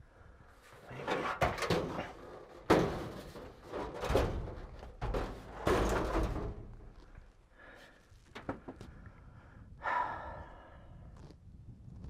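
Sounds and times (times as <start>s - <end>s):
scraping and rustling: 0.6s - 7.3s
knocks of loose parts: 1.1s - 7.1s.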